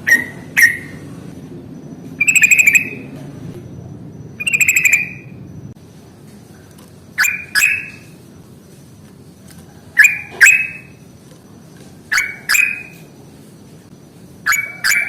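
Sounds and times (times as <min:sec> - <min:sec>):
bird chattering trills: 0:02.2 - 0:03.1, 0:04.4 - 0:05.4, 0:07.1 - 0:08.2, 0:09.9 - 0:11.0, 0:12.1 - 0:13.1, 0:14.4 - 0:15.0
sharp bird call notes: 0:04.4 - 0:05.3.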